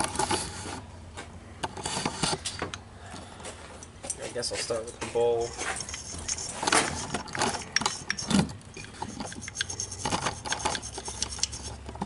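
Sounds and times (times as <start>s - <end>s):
brush scrubbing metal bowl: 5.4s - 11.8s.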